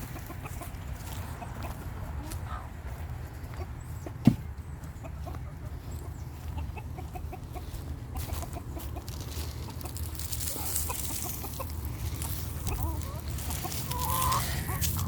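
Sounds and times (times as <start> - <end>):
chickens clucking: 0.0 - 15.0
sharp thump: 4.2 - 4.5.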